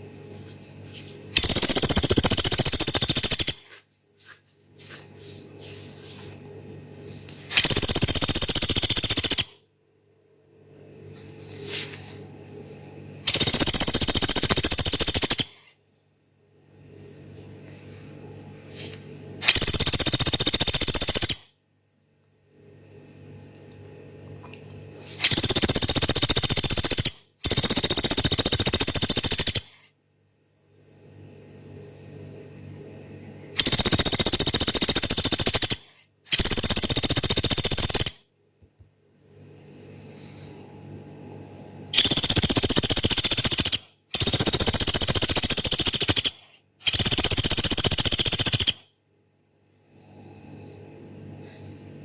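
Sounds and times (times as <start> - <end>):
woodpecker rattling trills: 1.4 - 3.7, 7.6 - 9.6, 13.3 - 15.6, 19.4 - 21.4, 25.2 - 29.8, 33.6 - 38.2, 42.0 - 48.8.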